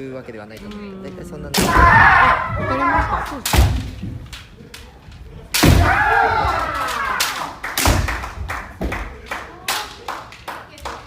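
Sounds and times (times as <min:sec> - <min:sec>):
bamboo swords striking: 0:01.5 - 0:02.3, 0:03.0 - 0:04.8, 0:05.5 - 0:08.2.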